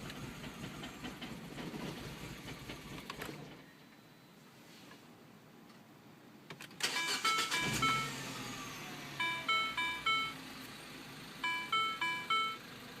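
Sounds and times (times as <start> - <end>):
car warning chime: 6.9 - 8.4, 9.1 - 10.4, 11.4 - 12.7.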